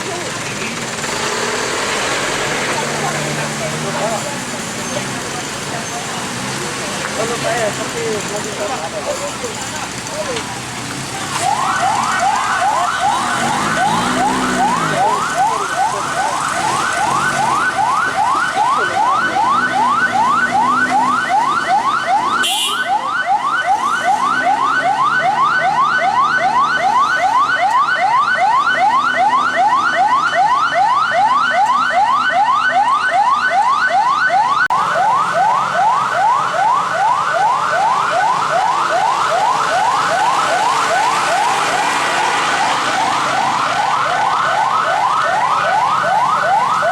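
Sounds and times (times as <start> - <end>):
faint voices murmuring: 2.6 - 21.2
electronic siren rapid sweeps: 11.4 - 46.9.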